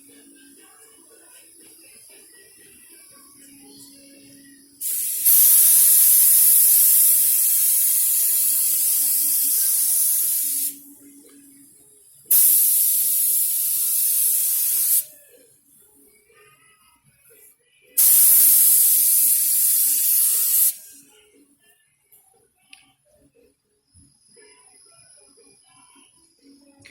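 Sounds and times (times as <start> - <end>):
paint spray gun hissing: 4.8 - 10.8, 12.3 - 15.1, 18.0 - 21.0.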